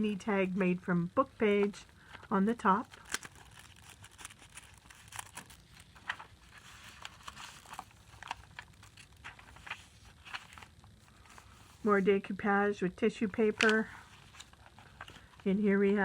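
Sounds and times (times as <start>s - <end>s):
paper rustling and crinkling: 2.0s - 12.0s, 13.4s - 16.0s.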